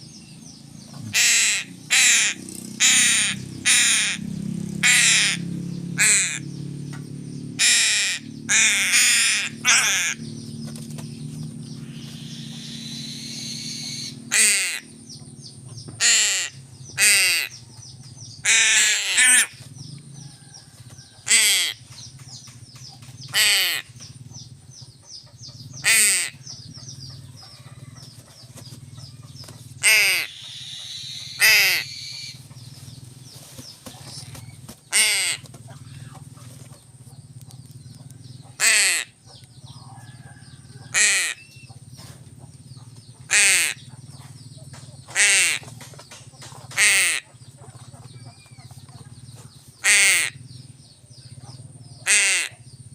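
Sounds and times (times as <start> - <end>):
steady low hum: 0.0 - 52.9
crows cawing: 1.1 - 6.5, 7.6 - 10.4, 11.7 - 15.0, 16.0 - 17.7, 18.4 - 19.6, 21.0 - 22.1, 23.3 - 24.1, 25.7 - 26.5, 29.8 - 32.4, 34.0 - 36.2, 38.5 - 39.3, 40.8 - 41.6, 43.2 - 43.9, 45.1 - 45.8, 46.7 - 47.4, 49.8 - 50.5, 52.0 - 52.7.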